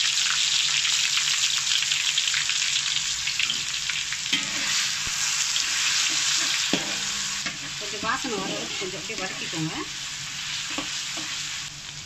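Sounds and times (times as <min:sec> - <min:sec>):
food sizzling in hot oil: 0:00.0 - 0:12.0
spatula scraping a wok: 0:04.3 - 0:11.7.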